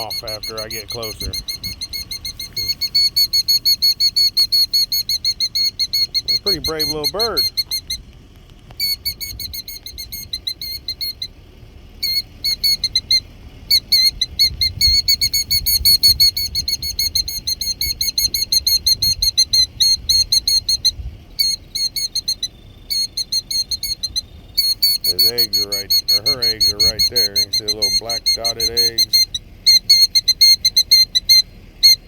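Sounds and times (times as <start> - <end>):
bird alarm calls: 0.0 - 32.0.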